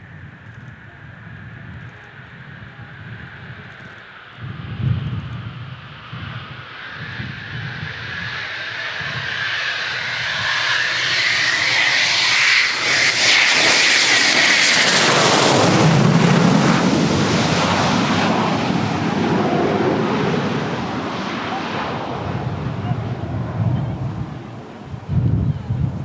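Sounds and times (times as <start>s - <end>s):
jet passing with high whine: 2.2s - 26.0s
deep jet rumble: 4.4s - 26.0s.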